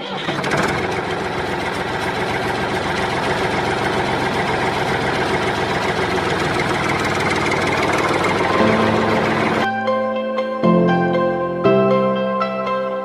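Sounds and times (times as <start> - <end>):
engine idling chugging: 0.0 - 9.7.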